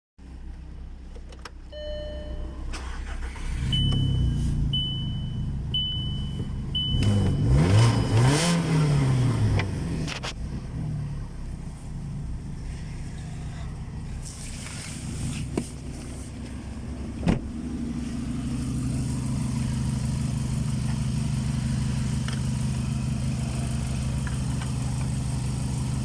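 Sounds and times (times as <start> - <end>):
dashboard chime: 1.7 - 3.0, 3.6 - 8.8
short high beeps: 1.7 - 8.8
car engine starting and revving: 2.7 - 26.0.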